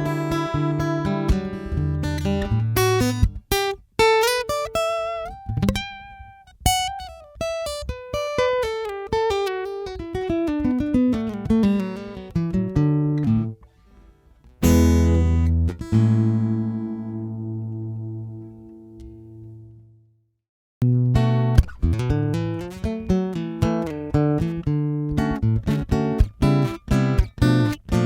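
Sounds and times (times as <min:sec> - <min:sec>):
acoustic guitar playing: 0:00.0 - 0:20.0, 0:20.8 - 0:28.0.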